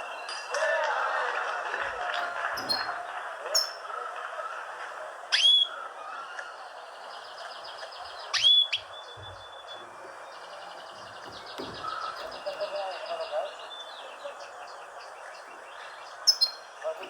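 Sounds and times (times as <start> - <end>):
bird whistled calls: 2.6 - 3.0, 5.4 - 5.8, 8.3 - 9.8, 16.2 - 16.7
fast high bird trill: 2.6 - 3.0, 16.3 - 16.7.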